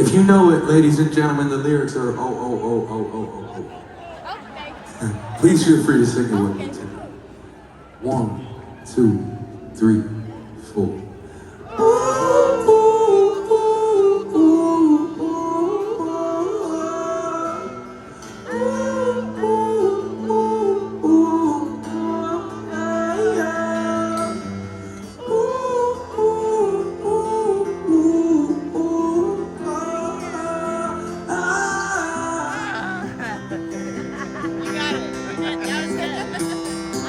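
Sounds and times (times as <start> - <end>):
guitar: 0.0 - 37.0
singer and audience singing together: 11.7 - 34.5.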